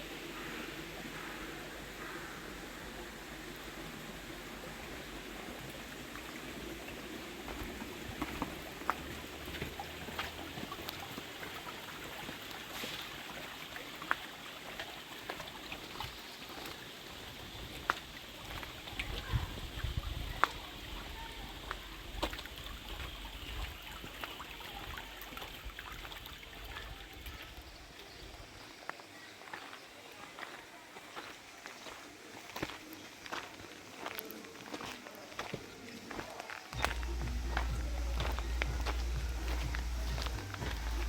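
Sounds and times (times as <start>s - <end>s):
stream water trickling: 0.0s - 41.0s
low rumble: 36.8s - 41.0s.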